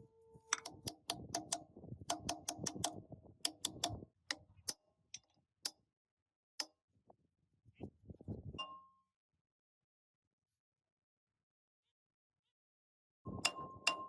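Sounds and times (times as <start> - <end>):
hand tool tapping on metal: 0.5 - 5.3.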